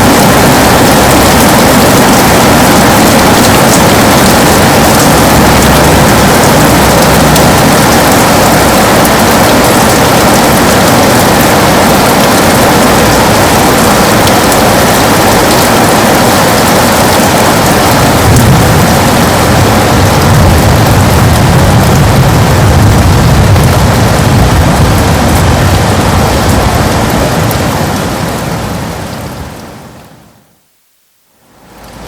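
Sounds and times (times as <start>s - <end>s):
heavy rain on a window: 0.0s - 32.0s
low rumble: 0.1s - 14.8s, 17.7s - 28.4s.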